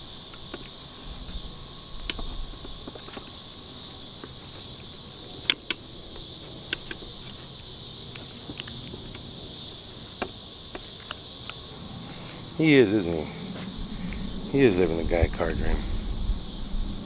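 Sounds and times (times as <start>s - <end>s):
high insect chorus: 0.0s - 17.0s
handling clicks and taps: 0.3s - 1.4s, 2.0s - 3.4s, 4.2s - 7.5s, 8.1s - 9.3s, 10.1s - 11.6s.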